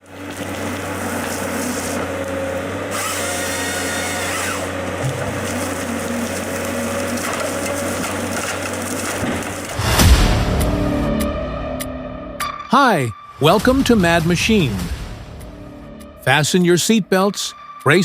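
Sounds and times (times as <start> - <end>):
power saw cutting wood: 0.0 - 9.9.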